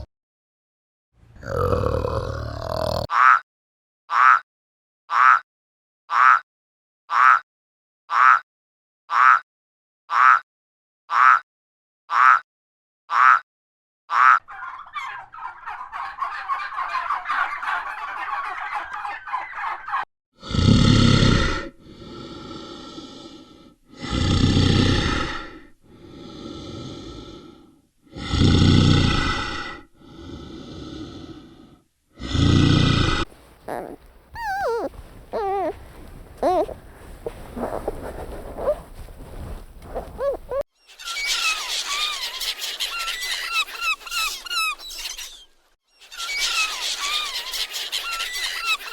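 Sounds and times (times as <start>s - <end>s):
animal calls: 14.1s - 20.0s, 33.3s - 48.9s
rapid rattling call: 33.3s - 36.9s
gliding chirps: 33.6s - 36.8s.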